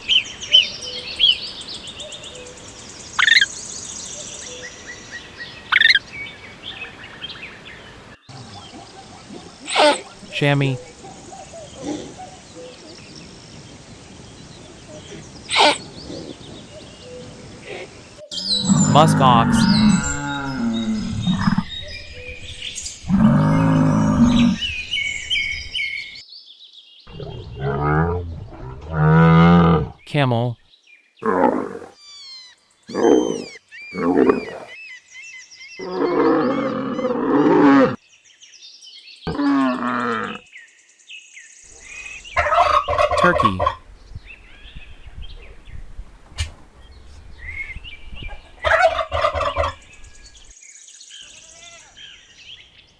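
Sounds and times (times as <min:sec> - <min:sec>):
faint outdoor background: 0:10.2 - 0:10.9, 0:18.3 - 0:26.2, 0:30.1 - 0:30.6, 0:43.2 - 0:43.8
camel bellowing: 0:18.6 - 0:21.7.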